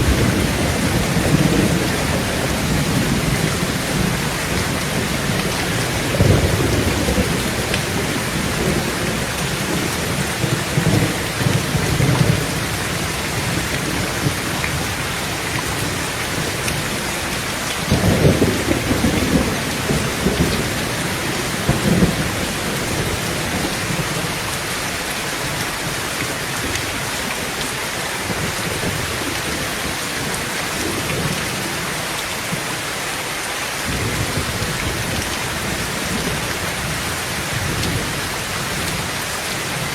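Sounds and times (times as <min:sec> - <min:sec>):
thunder rumbling: 0:00.0 - 0:25.8, 0:33.9 - 0:39.9
heavy rain on a tin roof: 0:00.0 - 0:39.9.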